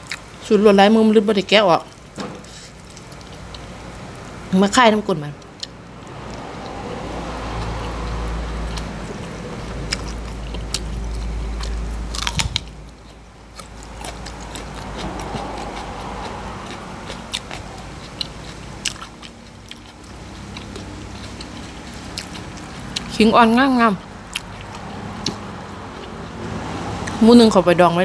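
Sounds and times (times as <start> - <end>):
person chewing food: 0.0 - 0.3, 1.9 - 4.0, 5.4 - 23.2, 24.3 - 27.2
wet mouth clicks: 24.3 - 26.2.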